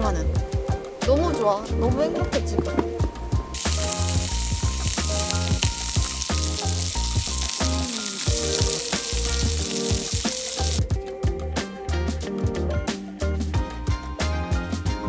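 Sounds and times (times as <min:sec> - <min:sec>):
background music with bass: 0:00.0 - 0:15.0
food sizzling in a pan: 0:03.5 - 0:10.8.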